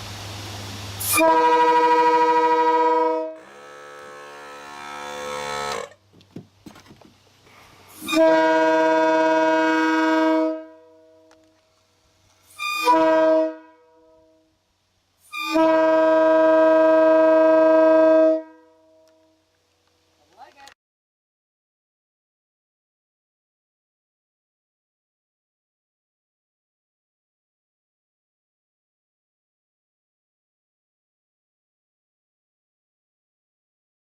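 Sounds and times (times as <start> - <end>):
locomotive air horn blasts: 1.0 - 5.9, 7.9 - 11.5, 12.4 - 14.5, 15.2 - 19.4.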